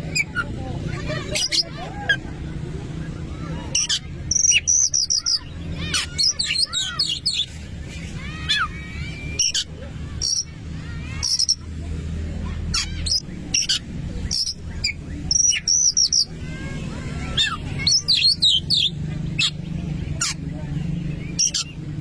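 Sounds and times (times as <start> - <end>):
bird singing: 3.8 - 7.5, 8.3 - 11.7, 12.7 - 22.0.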